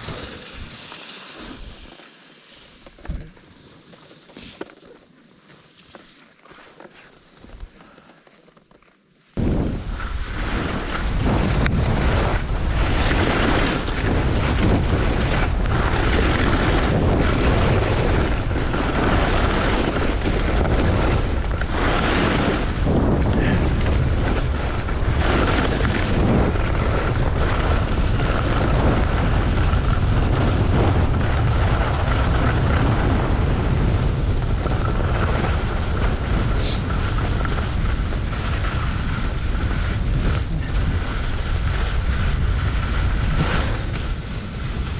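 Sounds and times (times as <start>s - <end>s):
wind rushing over microphone: 0.0s - 0.9s, 9.4s - 44.9s
skis hissing over snow: 0.0s - 7.8s, 36.3s - 37.8s.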